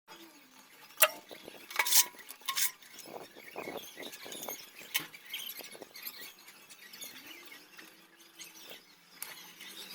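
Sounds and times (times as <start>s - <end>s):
objects scraping and rattling: 0.8s - 6.3s.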